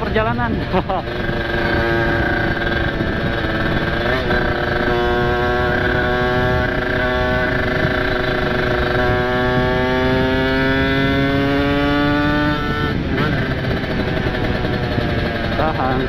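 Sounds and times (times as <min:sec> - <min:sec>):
motorcycle engine accelerating: 0:00.0 - 0:16.0
wind noise on microphone: 0:00.0 - 0:16.0.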